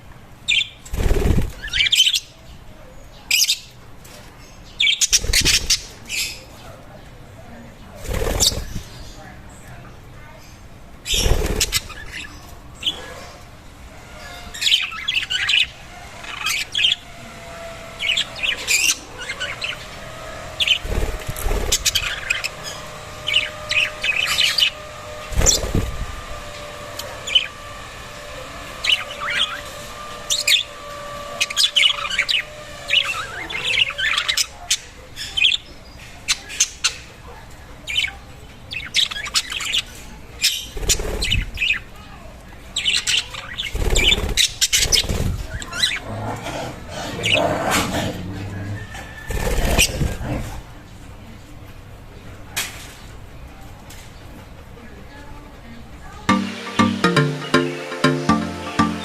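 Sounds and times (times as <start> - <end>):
budgerigars chirping: 0.5 - 0.8, 1.5 - 2.3, 4.6 - 6.6, 8.2 - 9.4, 11.1 - 13.5, 14.1 - 27.6, 28.7 - 35.7.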